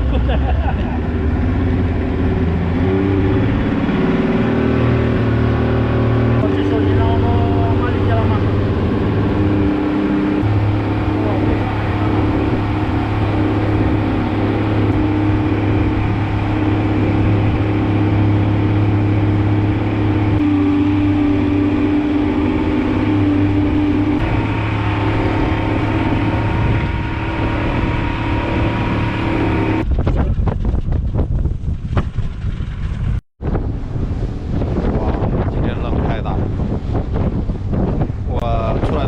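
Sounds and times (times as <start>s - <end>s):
rushing water: 0.0s - 29.8s
boat motor droning: 0.0s - 30.0s
rushing wind: 0.0s - 39.0s.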